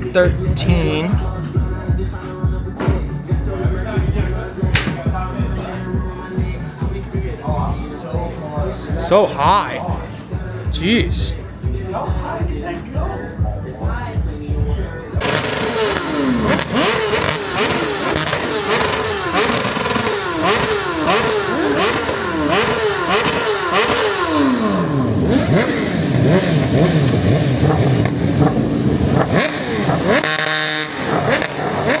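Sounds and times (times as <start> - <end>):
vehicle engine revving: 0.0 - 32.0.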